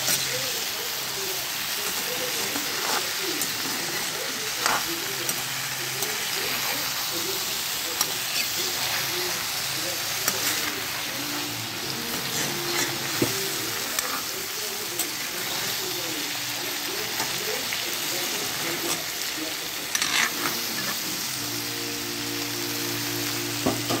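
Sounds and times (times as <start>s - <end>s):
pumpkin sizzling in hot oil: 0.0s - 24.0s
metal spatula clicking and scraping: 1.9s - 6.8s, 19.8s - 21.1s.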